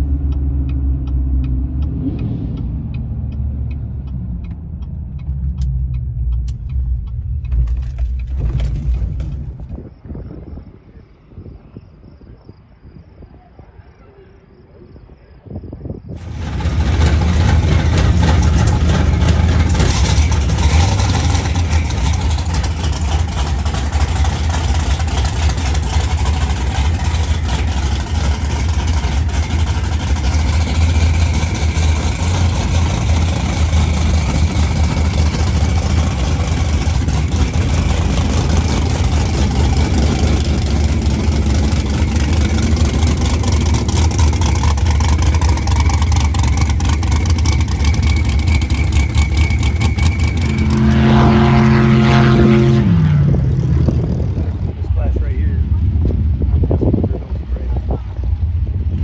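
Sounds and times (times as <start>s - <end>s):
vehicle engine rumbling: 0.0s - 59.0s.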